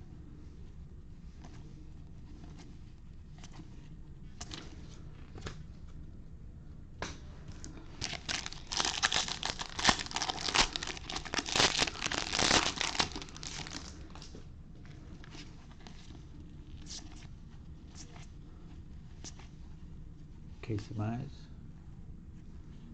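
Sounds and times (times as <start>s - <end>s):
foil wrapper tearing and crinkling: 8.0s - 14.2s.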